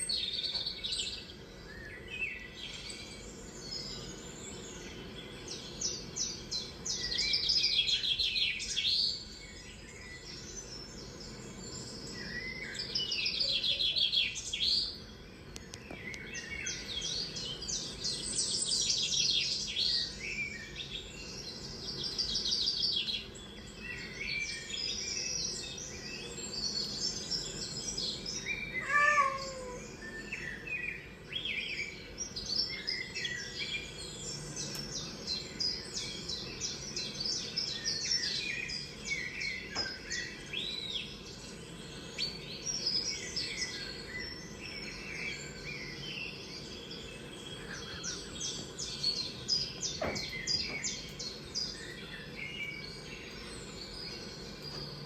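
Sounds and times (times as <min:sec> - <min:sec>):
small songbirds chirping: 0:00.0 - 0:55.0
low falling bird call: 0:00.1 - 0:31.0, 0:42.2 - 0:55.0.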